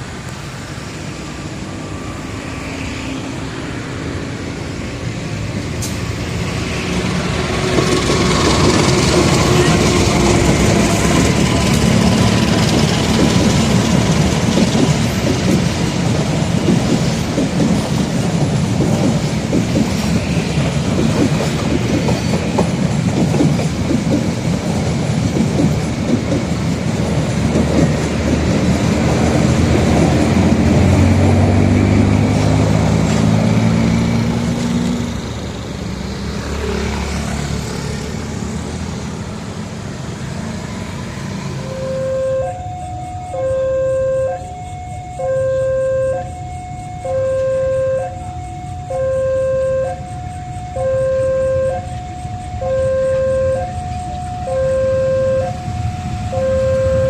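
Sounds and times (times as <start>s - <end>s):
low diesel engine hum: 0.0s - 57.0s
train wheels clattering: 5.5s - 33.6s.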